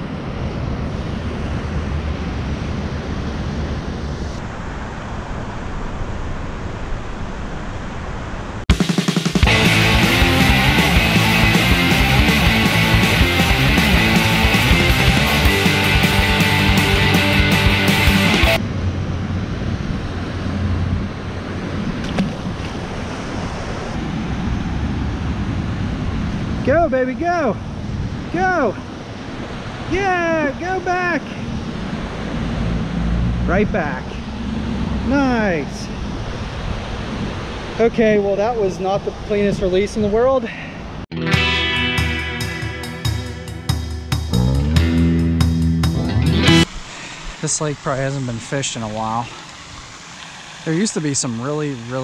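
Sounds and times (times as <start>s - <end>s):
rushing water: 0.0s - 18.7s, 19.3s - 41.1s, 46.4s - 52.0s
wind buffeting microphone: 18.6s - 41.0s.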